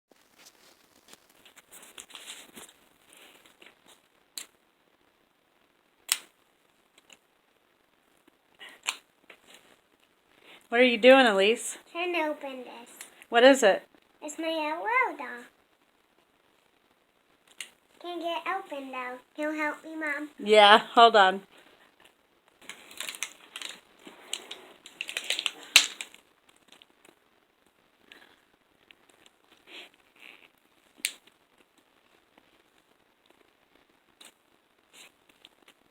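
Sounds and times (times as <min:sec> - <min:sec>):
plastic packaging clicks and crinkles: 0:00.2 - 0:04.6, 0:22.0 - 0:27.2
plastic packaging crinkling: 0:22.6 - 0:26.9
plastic snapping: 0:22.7 - 0:26.2.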